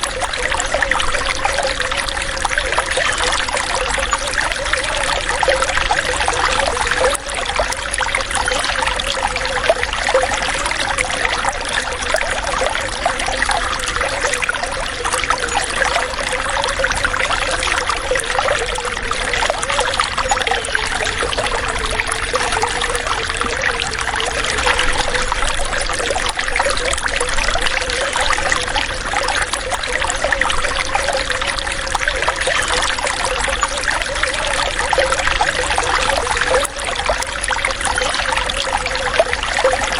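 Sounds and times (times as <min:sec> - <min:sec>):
running water trickling: 0:00.0 - 0:39.9.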